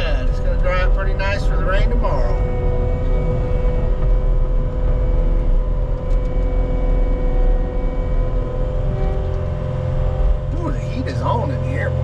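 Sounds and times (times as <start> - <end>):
diesel engine rumbling: 0.0 - 12.0
steady whine: 0.0 - 12.0.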